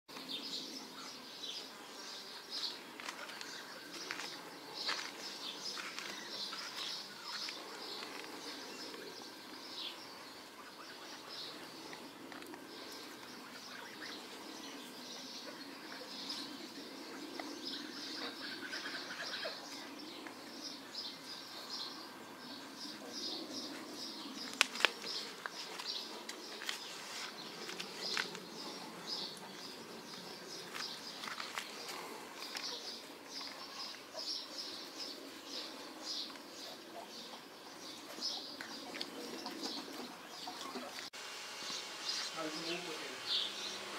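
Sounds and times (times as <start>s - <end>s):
small birds chirping: 0.1s - 43.9s.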